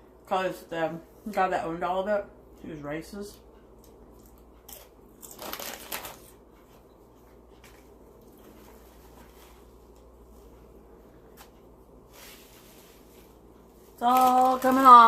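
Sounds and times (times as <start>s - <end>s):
paper crinkling: 5.2s - 6.4s, 14.0s - 15.0s.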